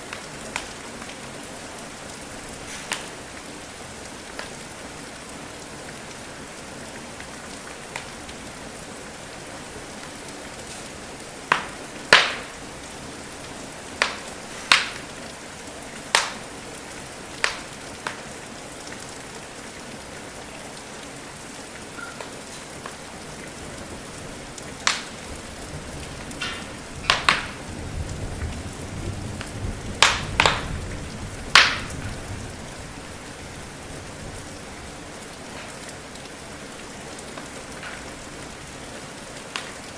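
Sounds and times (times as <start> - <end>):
steady rain: 0.0 - 39.9
wood fire popping: 2.6 - 3.2, 11.5 - 12.6, 14.0 - 15.1, 16.1 - 16.5, 17.4 - 18.3, 24.8 - 25.2, 26.0 - 27.6, 29.4 - 30.8, 31.4 - 32.2.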